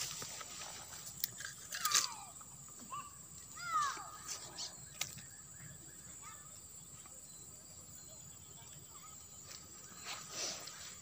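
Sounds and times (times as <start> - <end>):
fishing rod and line clicks: 1.1 - 2.3.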